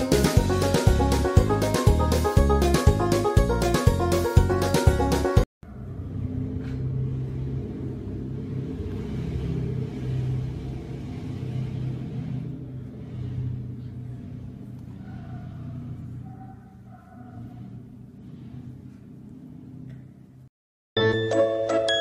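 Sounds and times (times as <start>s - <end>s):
big cats growling: 8.9s - 19.1s.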